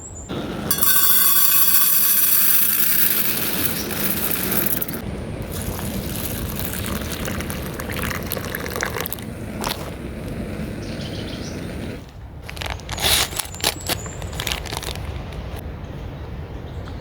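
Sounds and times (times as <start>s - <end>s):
liquid pouring: 0.7s - 10.6s.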